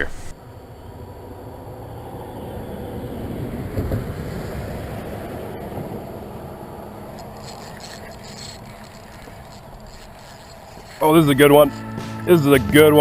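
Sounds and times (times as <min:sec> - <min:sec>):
moving water: 0:03.8 - 0:12.0.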